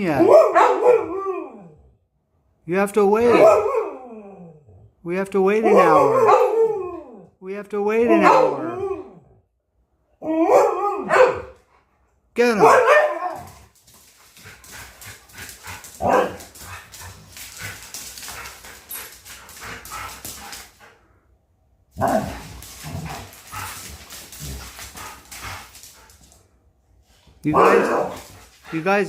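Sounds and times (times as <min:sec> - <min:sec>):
dogs whining and barking: 0:00.3 - 0:01.8, 0:03.3 - 0:04.7, 0:05.6 - 0:07.2, 0:08.1 - 0:09.4, 0:10.2 - 0:11.6, 0:15.2 - 0:20.2.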